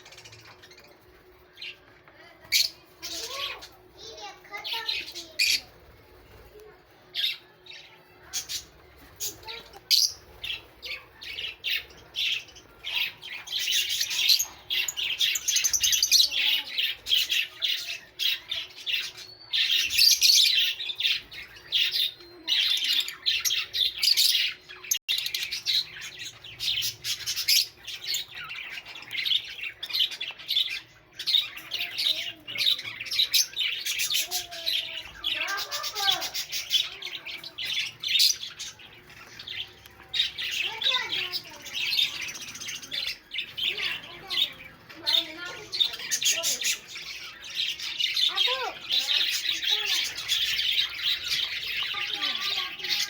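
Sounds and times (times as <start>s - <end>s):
lovebirds chattering and squawking: 0.0s - 53.0s.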